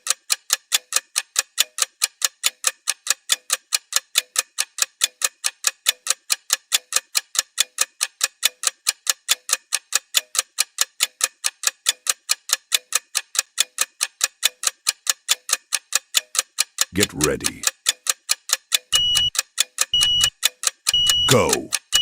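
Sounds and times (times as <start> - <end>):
clock-style timer ticking: 0.0 - 22.0.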